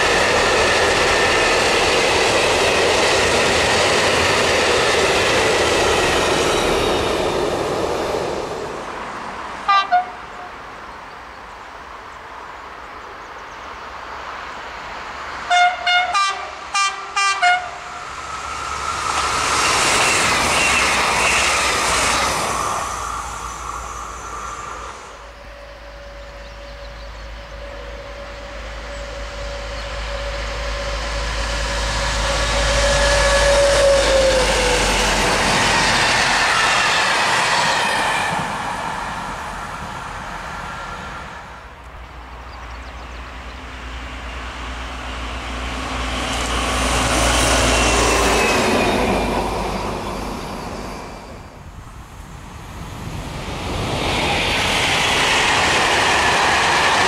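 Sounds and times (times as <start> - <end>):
train passing at speed: 0.0 - 57.0
train whine: 0.0 - 57.0
train horn blasts: 9.7 - 10.6, 15.5 - 18.1, 25.4 - 34.7.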